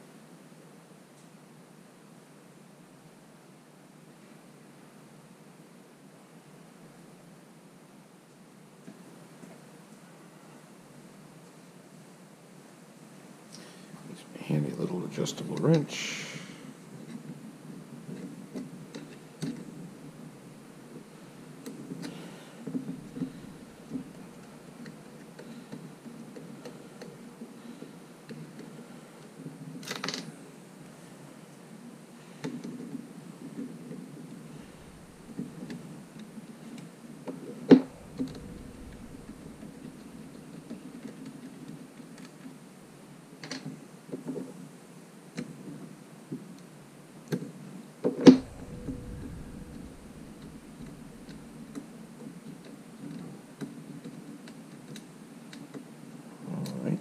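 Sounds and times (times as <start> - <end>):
low steady hum: 13.6 - 29.2, 34.2 - 36.1, 37.6 - 41.2, 48.3 - 52.5.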